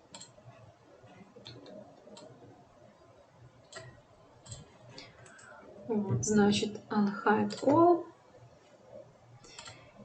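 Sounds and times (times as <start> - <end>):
computer mouse clicks: 0.0 - 0.4, 1.4 - 2.4, 3.6 - 5.5, 7.4 - 7.8, 9.4 - 9.9.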